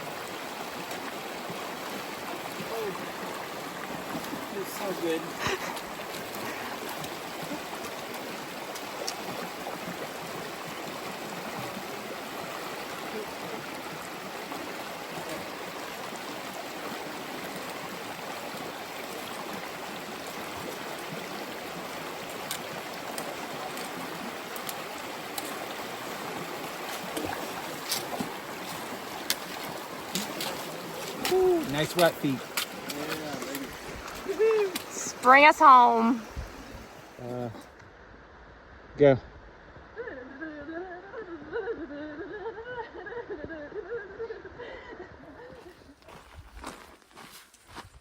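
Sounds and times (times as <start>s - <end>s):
mountain stream rushing: 0.0s - 37.6s.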